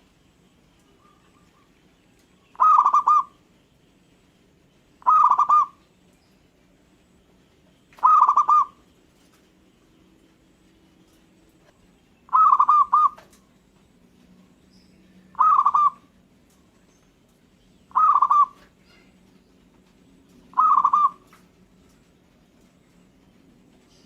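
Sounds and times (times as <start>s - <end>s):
dove cooing: 2.5s - 3.4s, 5.0s - 5.8s, 8.0s - 8.8s, 12.3s - 13.4s, 15.3s - 16.1s, 17.9s - 19.2s, 20.5s - 21.4s.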